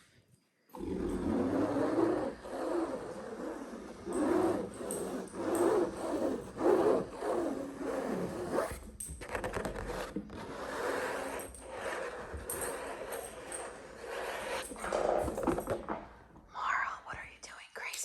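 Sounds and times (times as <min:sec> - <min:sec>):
fingernails scratching textured object: 0:00.8 - 0:15.9.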